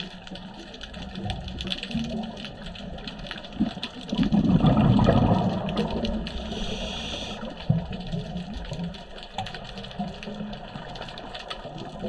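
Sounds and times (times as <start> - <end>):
faint crackling clicks: 0.0 - 12.0
exhaled bubbles rushing: 1.3 - 9.0
regulator hissing inhale: 6.3 - 7.6.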